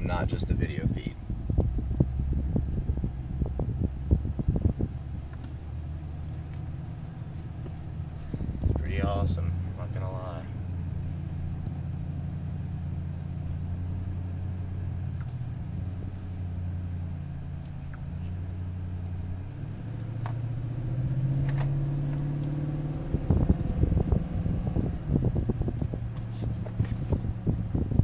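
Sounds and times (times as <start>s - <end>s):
gusty rumble: 0.0s - 28.0s
vehicle engine and road noise: 0.0s - 28.0s.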